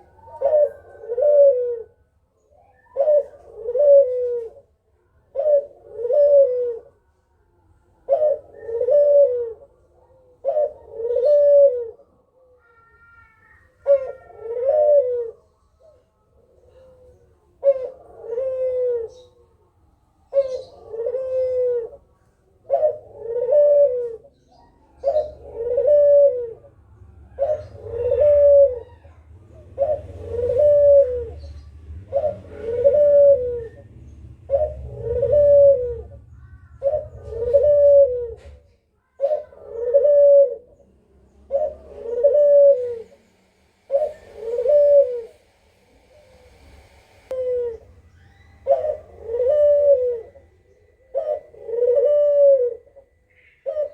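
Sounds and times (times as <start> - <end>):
bird low rising and falling call: 22.7 - 40.8, 47.2 - 53.9.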